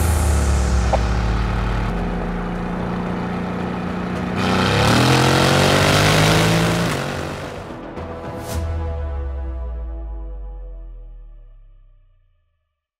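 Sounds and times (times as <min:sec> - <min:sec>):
sports car engine accelerating: 0:00.0 - 0:07.8.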